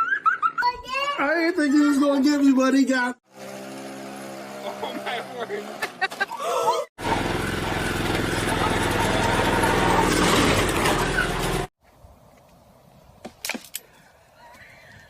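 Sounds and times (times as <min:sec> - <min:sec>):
motor vehicle running: 0:03.3 - 0:06.3, 0:07.0 - 0:11.7.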